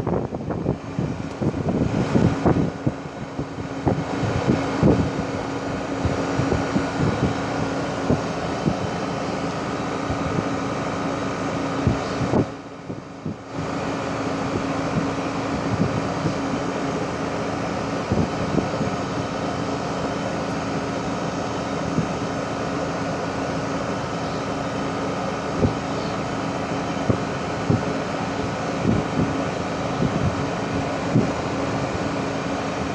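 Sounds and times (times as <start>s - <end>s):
heat pump fan and compressor hum: 0.0s - 32.9s.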